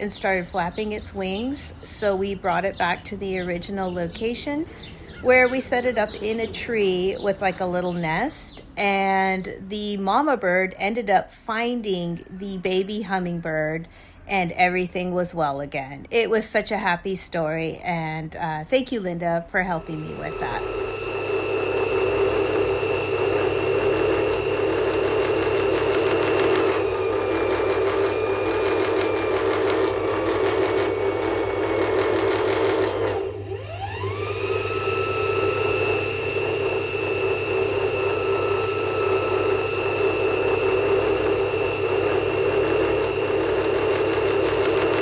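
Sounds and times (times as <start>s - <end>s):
steady droning hum: 17.9s - 45.0s.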